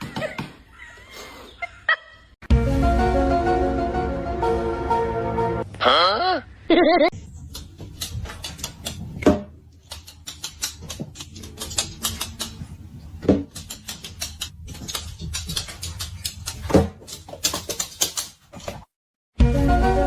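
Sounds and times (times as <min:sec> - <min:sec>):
irregular clicking and scratching: 0:07.2 - 0:18.9.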